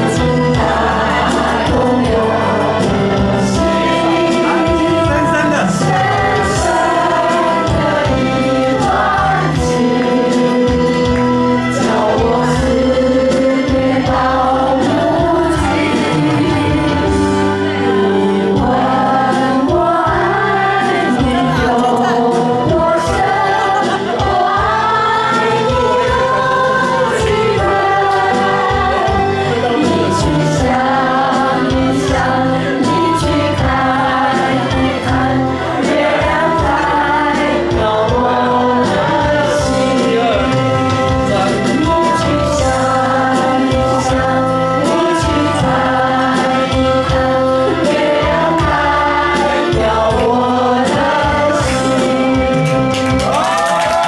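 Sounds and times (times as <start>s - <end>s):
music: 0.0s - 54.0s
several voices singing together: 0.0s - 54.0s.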